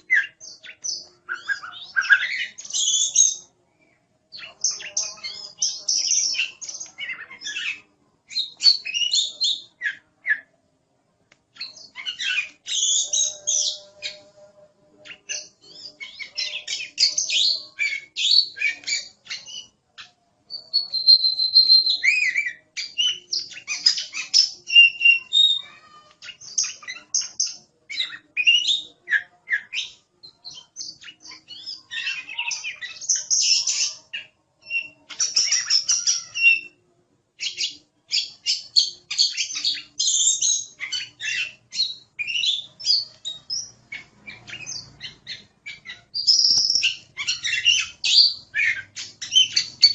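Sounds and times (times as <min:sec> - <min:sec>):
bird singing: 0:00.0 - 0:10.6, 0:11.5 - 0:49.9.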